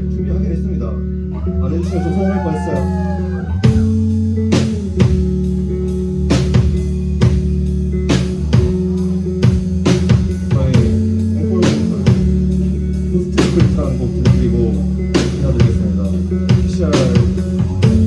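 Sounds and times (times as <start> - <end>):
live rock band playing: 1.8 - 18.0
drum kit steady beat: 3.6 - 18.0.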